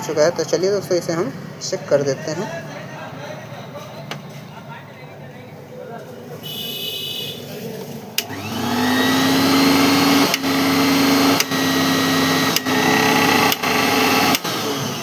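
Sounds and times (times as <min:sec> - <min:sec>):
mixer grinder motor whining: 0:08.2 - 0:15.0
switch click: 0:10.3 - 0:10.5, 0:11.3 - 0:11.6, 0:12.5 - 0:12.7.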